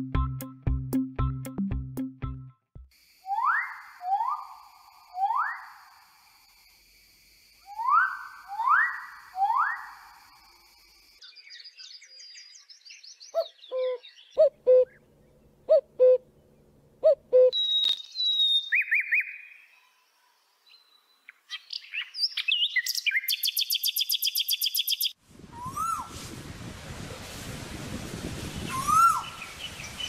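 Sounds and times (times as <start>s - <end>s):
nightingale whistles and trills: 3.2s - 5.9s, 7.6s - 10.1s, 11.2s - 15.0s, 17.1s - 20.0s, 20.6s - 26.1s, 28.7s - 30.0s.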